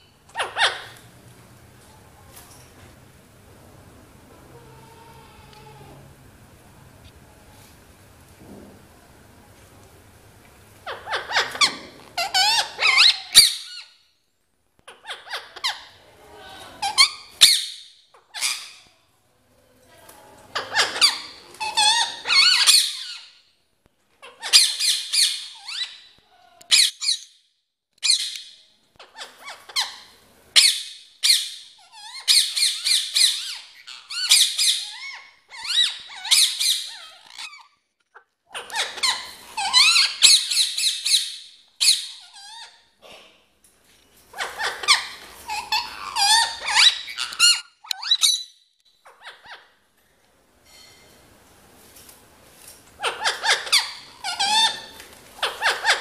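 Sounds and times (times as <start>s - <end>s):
parrot squawking: 0.3s - 1.1s, 10.8s - 14.0s, 14.9s - 16.0s, 20.5s - 23.3s, 28.0s - 42.9s, 44.3s - 49.8s, 53.0s - 56.0s.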